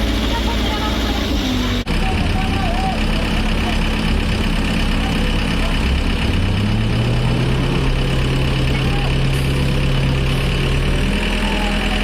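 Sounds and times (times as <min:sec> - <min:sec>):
heavy truck engine running: 0:00.0 - 0:12.0.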